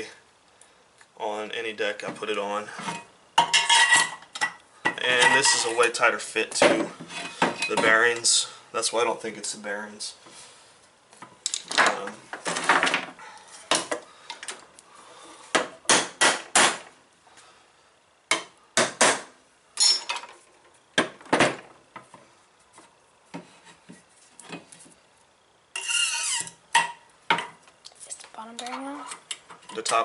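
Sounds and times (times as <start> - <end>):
metal clinks and knocks: 19.8 - 20.4
metal scraping and rubbing: 25.7 - 26.6.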